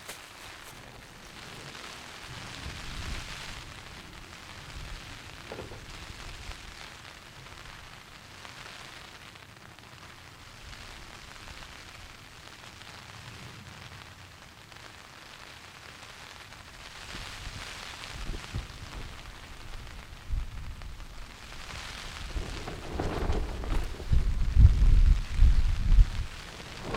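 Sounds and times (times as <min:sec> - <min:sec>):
gusting wind: 0:00.0 - 0:08.1, 0:16.8 - 0:26.9
steady rain: 0:00.0 - 0:26.9.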